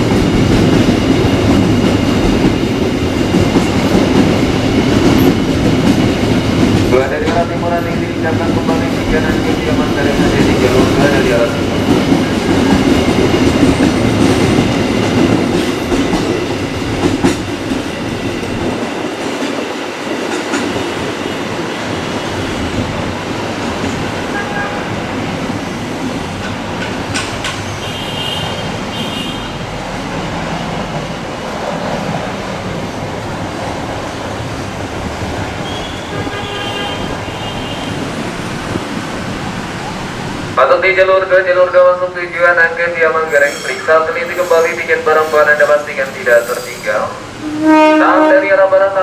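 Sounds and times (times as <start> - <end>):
clickety-clack over rail joints: 0.0 - 40.4
train wheels rumbling: 0.0 - 41.2, 43.2 - 48.5
high squeals: 43.3 - 47.1.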